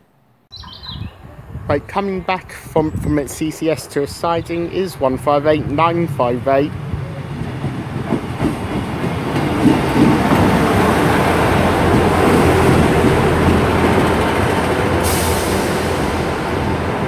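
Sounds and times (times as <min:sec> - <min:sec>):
diesel train engines and wheels: 0:00.5 - 0:17.0
sharp hiss of air: 0:15.0 - 0:16.5.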